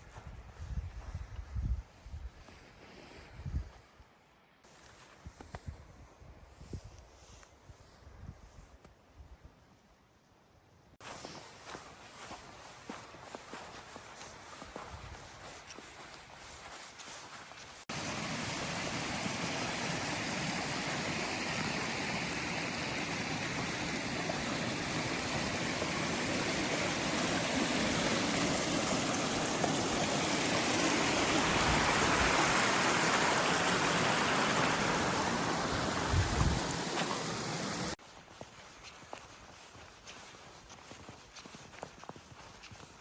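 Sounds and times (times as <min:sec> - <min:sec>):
running water rushing: 0:17.9 - 0:38.0.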